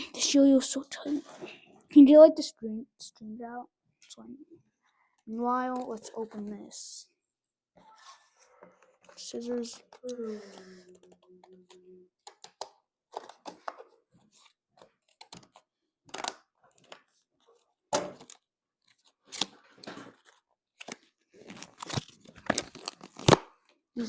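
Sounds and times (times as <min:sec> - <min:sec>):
plastic and card crackling tearing: 0:05.6 - 0:06.5, 0:09.5 - 0:17.6, 0:18.2 - 0:23.8.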